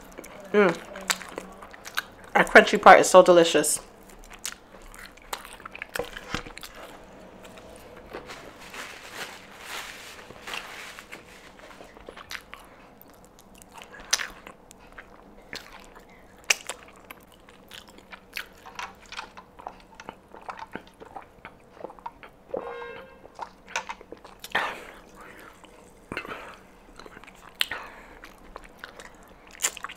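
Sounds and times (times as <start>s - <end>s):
chewing crispy fried chicken: 0.0s - 2.4s, 3.8s - 7.0s, 11.0s - 22.6s, 23.2s - 29.9s.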